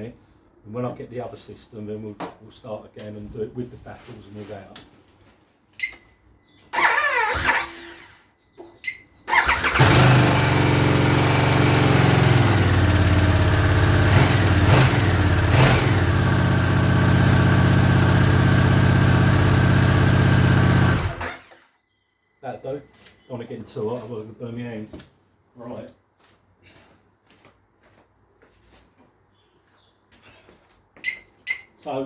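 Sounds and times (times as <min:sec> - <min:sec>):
motorcycle starter whirring: 0:06.7 - 0:08.2, 0:09.3 - 0:21.8
motorcycle engine idling: 0:09.4 - 0:21.4.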